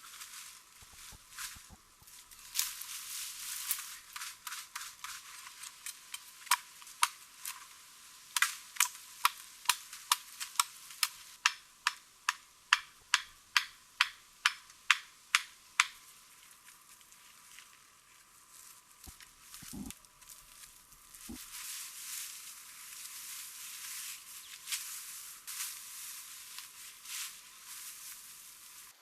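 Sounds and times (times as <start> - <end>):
rustling: 0.0 - 6.4, 16.2 - 29.0.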